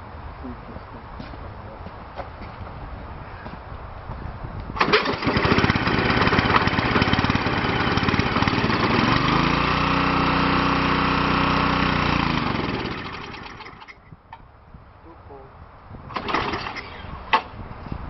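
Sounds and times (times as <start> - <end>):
snowblower engine starting and running: 4.8 - 14.0, 16.1 - 17.2.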